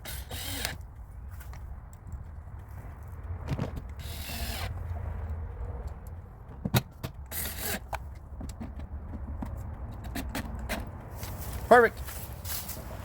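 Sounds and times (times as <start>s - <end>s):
steady low rumble: 0.8s - 7.4s.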